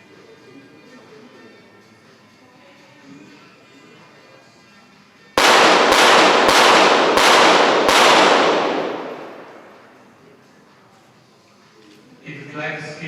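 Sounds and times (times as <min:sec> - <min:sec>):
pistol shots echoing: 0:05.4 - 0:10.1.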